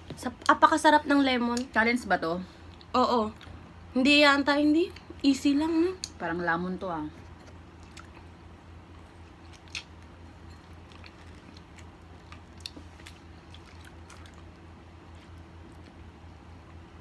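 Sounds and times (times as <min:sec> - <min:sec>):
steady low hum: 0:00.0 - 0:17.0
mouth chewing with wet clicks: 0:02.6 - 0:03.7, 0:06.0 - 0:06.2, 0:07.2 - 0:16.8.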